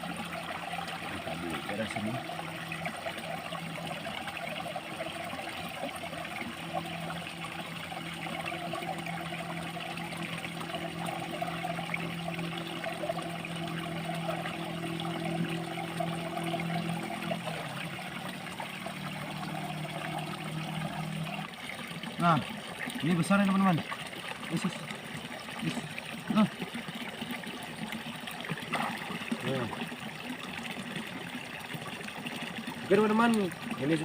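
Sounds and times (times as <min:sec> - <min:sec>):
low hum: 0:00.0 - 0:23.1
water trickling: 0:00.0 - 0:34.0.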